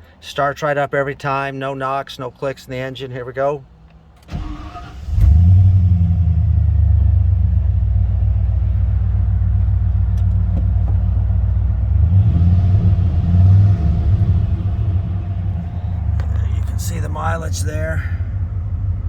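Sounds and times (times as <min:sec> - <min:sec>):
car engine starting and idling: 0:03.8 - 0:19.0.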